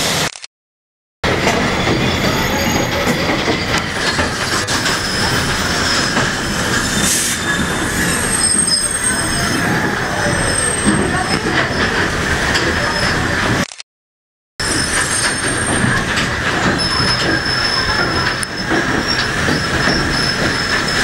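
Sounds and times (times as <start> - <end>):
train cars rumbling and rattling: 1.2 - 13.7, 14.6 - 21.0
high wheel squeal: 1.3 - 13.4, 14.6 - 21.0.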